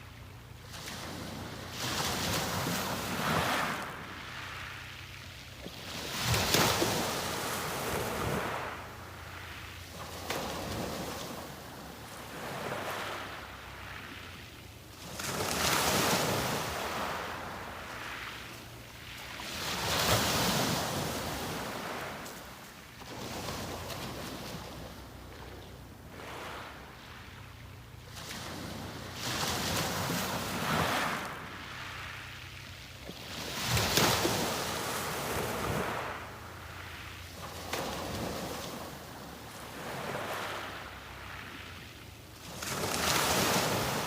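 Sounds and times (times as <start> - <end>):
waves breaking on beach: 0.0 - 44.0.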